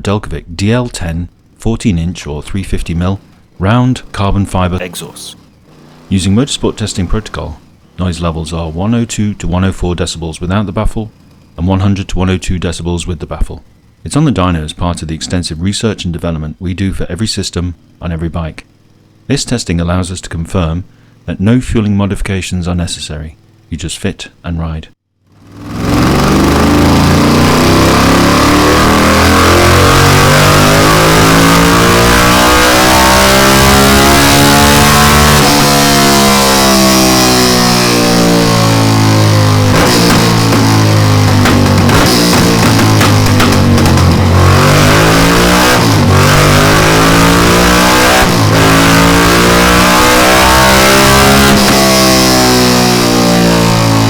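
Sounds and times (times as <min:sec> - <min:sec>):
motorcycle engine revving loud: 0:01.3 - 0:16.2, 0:25.3 - 0:54.0.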